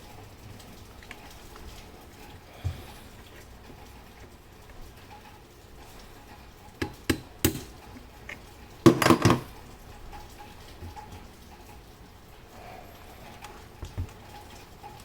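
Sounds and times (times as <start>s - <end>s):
metal objects clattering on hard surface: 8.8s - 9.6s.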